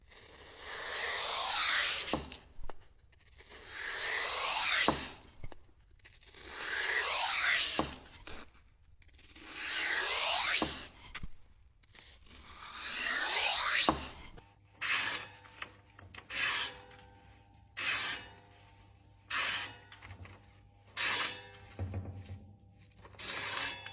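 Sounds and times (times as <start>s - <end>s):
scraping strokes: 0.0s - 23.9s.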